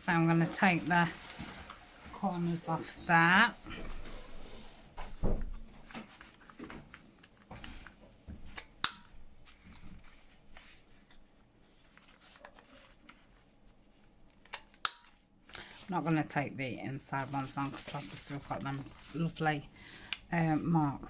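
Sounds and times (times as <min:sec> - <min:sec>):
paper handling: 0:05.4 - 0:08.6, 0:09.4 - 0:16.0.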